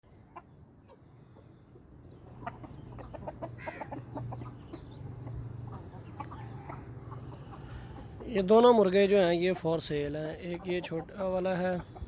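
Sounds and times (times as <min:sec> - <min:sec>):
roosters clucking: 0:00.1 - 0:12.0
rooster squawk: 0:03.4 - 0:04.0.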